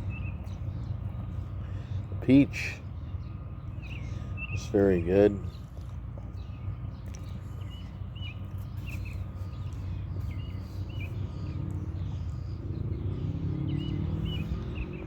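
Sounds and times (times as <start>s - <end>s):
small bird chirping: 5.4s - 15.0s.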